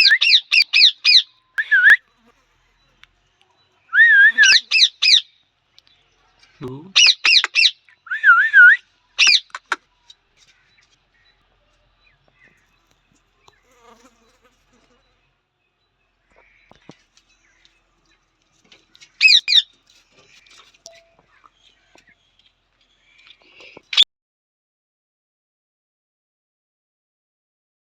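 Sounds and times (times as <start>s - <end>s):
parrot shrill calls: 4.0s - 5.3s, 7.0s - 9.6s, 19.2s - 19.6s.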